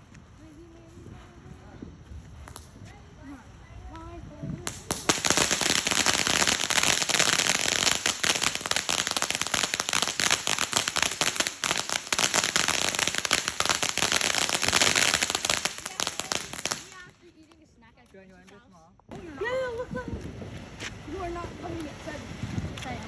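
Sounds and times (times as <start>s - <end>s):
fireworks crackling: 3.5s - 17.8s.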